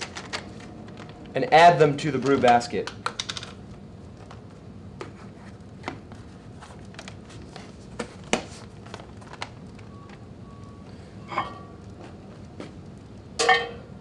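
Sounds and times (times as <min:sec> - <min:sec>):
tablets clicking into a brew basket: 0:02.1 - 0:03.6.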